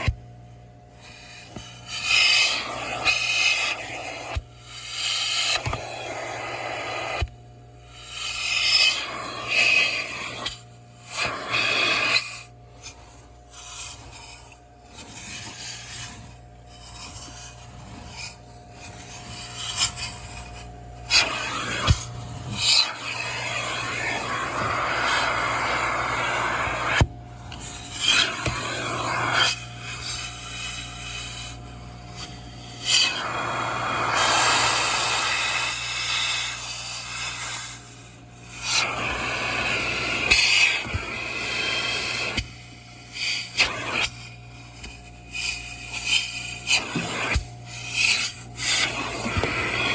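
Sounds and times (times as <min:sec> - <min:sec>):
vacuum motor hum: 0:00.0 - 0:49.9
vacuum hose nozzle sucking: 0:01.0 - 0:07.3, 0:07.9 - 0:49.9.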